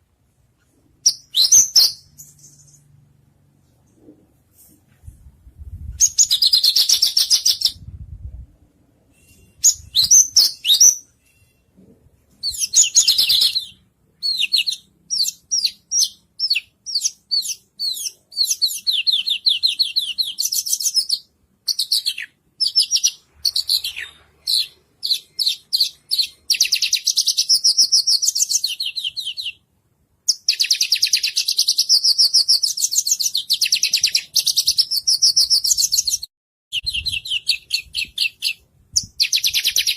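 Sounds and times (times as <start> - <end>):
songbird singing: 1.0 - 3.1, 9.2 - 11.6, 12.4 - 29.6, 30.3 - 39.9.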